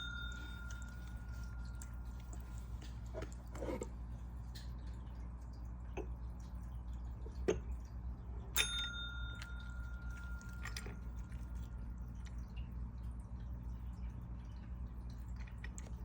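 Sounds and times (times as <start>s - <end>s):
light metallic clink ringing: 0.0s - 2.0s, 8.6s - 11.0s
steady low hum: 0.0s - 16.0s.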